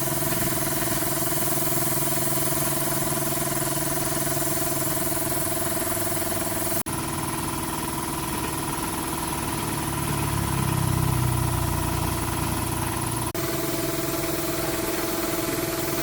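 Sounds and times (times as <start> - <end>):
motorbike engine idling: 4.0 - 15.4.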